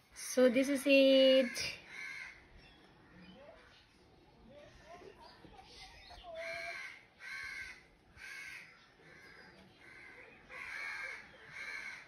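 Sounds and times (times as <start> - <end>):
bird giving harsh caw-like calls: 1.4 - 2.6, 6.3 - 12.0.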